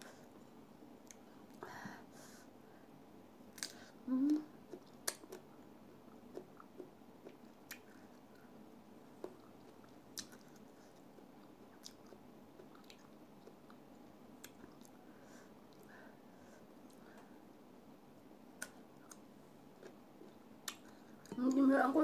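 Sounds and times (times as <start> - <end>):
person chewing with wet mouth clicks: 3.6 - 5.5, 6.2 - 8.5, 9.2 - 15.0, 18.6 - 19.2, 19.8 - 21.4.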